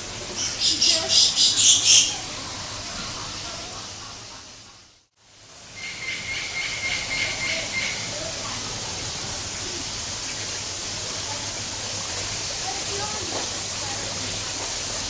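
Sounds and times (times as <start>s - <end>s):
steady hiss: 0.0s - 15.0s
bird high trilling call: 0.4s - 2.2s, 5.8s - 8.1s.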